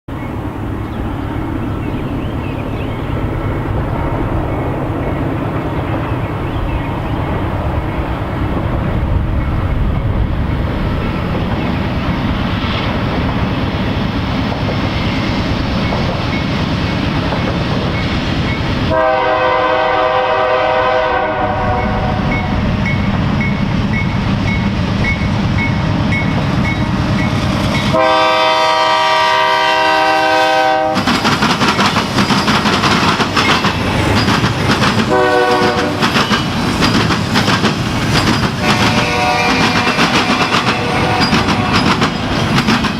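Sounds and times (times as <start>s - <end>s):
diesel locomotive engine rumbling: 0.1s - 42.9s
train horn blasts: 18.9s - 22.6s, 27.8s - 31.1s, 35.1s - 36.1s, 38.6s - 41.9s
cars clacking over rail joints: 31.0s - 42.9s.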